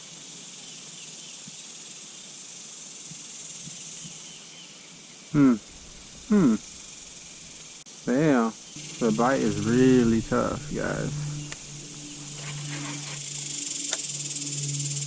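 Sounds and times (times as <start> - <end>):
insects droning: 0.0 - 15.0
man's short vocal sounds: 5.4 - 5.7, 6.3 - 6.6.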